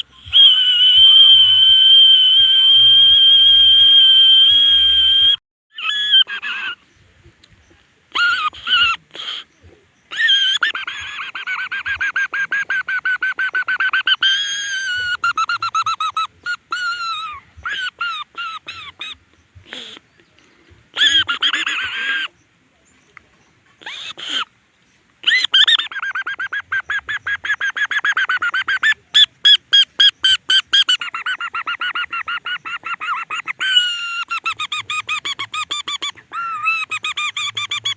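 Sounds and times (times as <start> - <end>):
leaf whistle buzzing trill: 0.0 - 6.4.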